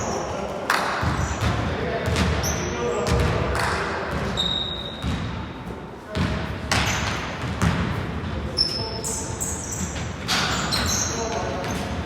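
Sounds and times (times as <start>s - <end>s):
players' voices echoing: 0.0s - 12.0s
sneaker squeaks: 1.0s - 3.3s, 4.1s - 5.3s, 6.2s - 7.9s, 8.5s - 12.0s
basketball bouncing on hardwood: 6.2s - 7.9s.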